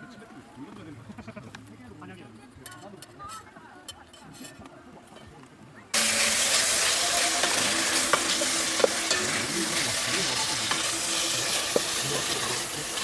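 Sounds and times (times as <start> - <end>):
food sizzling in a pan: 6.0 - 13.0.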